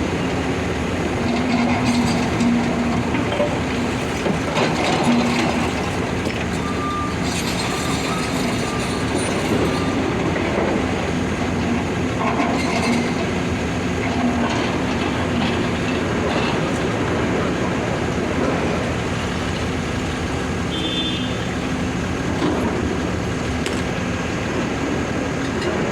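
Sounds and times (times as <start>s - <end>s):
diesel engines running: 0.0s - 25.9s.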